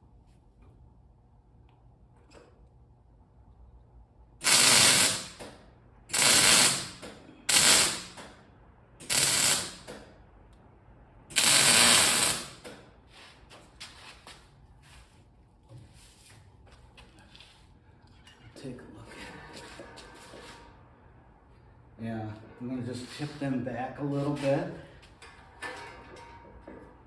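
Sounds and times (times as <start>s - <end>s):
arc welder tack welding: 4.4s - 8.4s, 9.0s - 10.2s, 11.3s - 12.9s.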